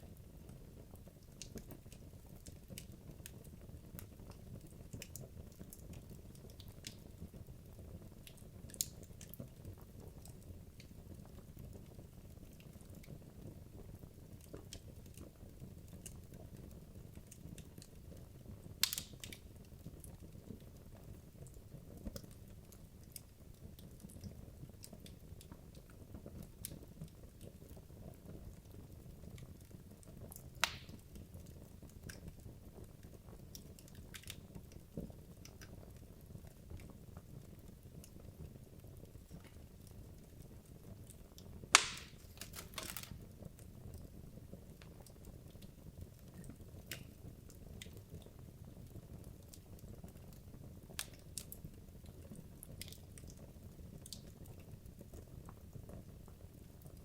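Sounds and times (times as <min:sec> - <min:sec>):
fire crackling: 0:00.0 - 0:57.0
sharp pops from burning logs: 0:18.8 - 0:20.7, 0:30.3 - 0:31.2, 0:41.7 - 0:43.7, 0:46.4 - 0:48.3, 0:50.8 - 0:51.7.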